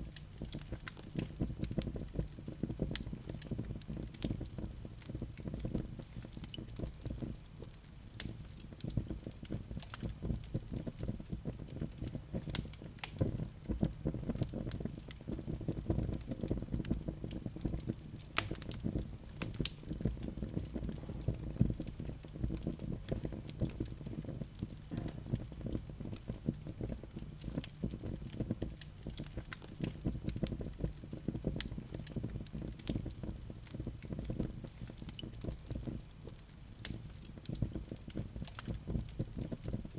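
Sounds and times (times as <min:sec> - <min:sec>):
low rumble of flames: 0:00.0 - 0:39.9
wood fire crackling: 0:00.0 - 0:39.9.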